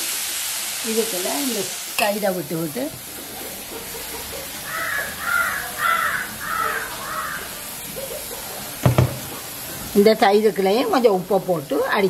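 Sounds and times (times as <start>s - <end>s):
bird calling harshly: 4.6s - 7.7s.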